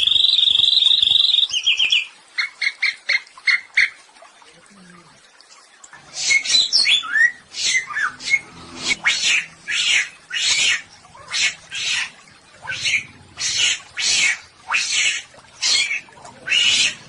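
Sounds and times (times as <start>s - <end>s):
bird whistling gliding notes: 6.2s - 10.8s
bird harsh rasping calls: 6.2s - 17.0s.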